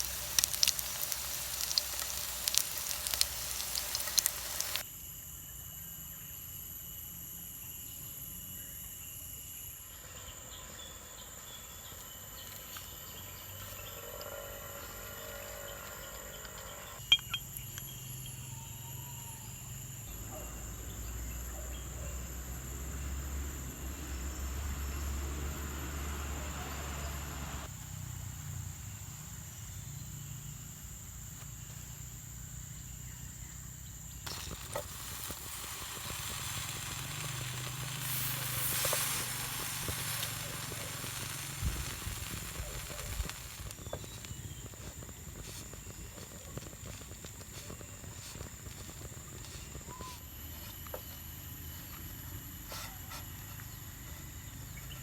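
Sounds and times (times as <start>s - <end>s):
food sizzling in a pan: 0.0s - 4.8s, 34.3s - 45.6s
insects droning: 0.0s - 55.0s.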